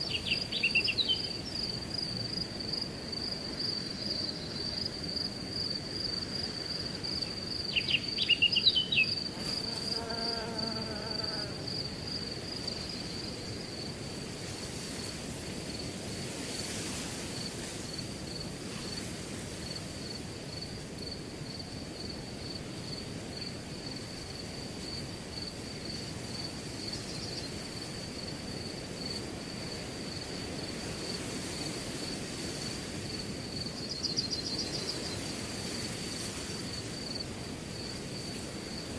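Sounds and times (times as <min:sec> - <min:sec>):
crickets chirping: 0:00.0 - 0:38.9
wind through grass: 0:00.0 - 0:38.9.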